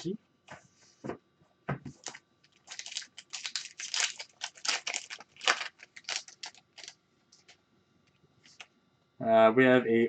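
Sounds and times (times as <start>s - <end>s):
foil wrapper crinkling and tearing: 2.0s - 7.6s.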